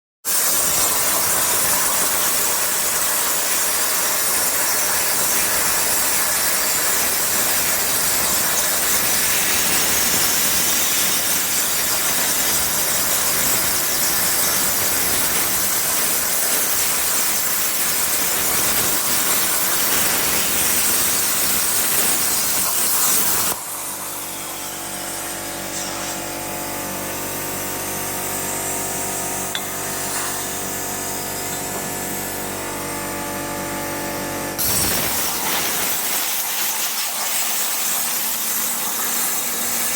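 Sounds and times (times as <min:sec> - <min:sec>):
plasma torch hissing: 0:19.9 - 0:32.8, 0:34.6 - 0:38.0.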